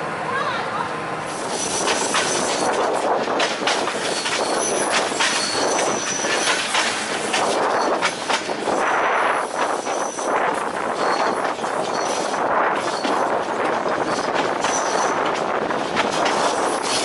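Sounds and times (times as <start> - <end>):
train wheels and coach rattling: 1.2 - 17.0
wheels squealing: 1.3 - 17.0
clanks and knocks: 1.6 - 8.5.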